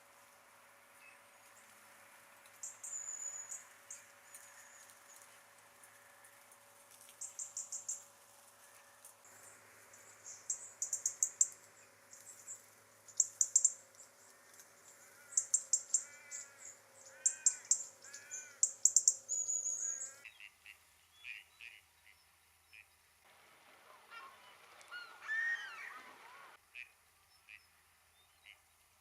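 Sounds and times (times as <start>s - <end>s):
small birds calling: 2.5s - 6.2s, 7.0s - 20.6s, 24.2s - 28.7s.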